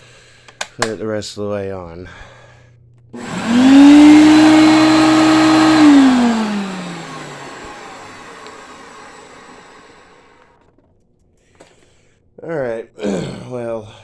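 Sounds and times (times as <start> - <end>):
vacuum cleaner motor whine: 3.2 - 10.7.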